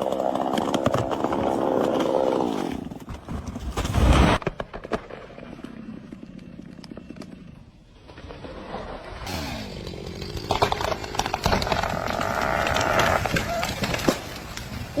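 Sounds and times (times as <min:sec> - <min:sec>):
chainsaw cutting wood: 0:09.3 - 0:14.6
sharp cracks and knocks: 0:10.4 - 0:15.0.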